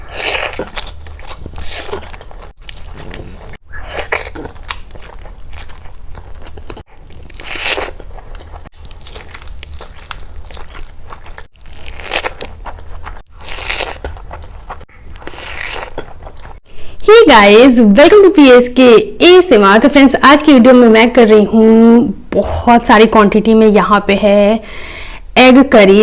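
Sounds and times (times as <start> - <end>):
person chewing crunchy food: 0.0 - 16.6.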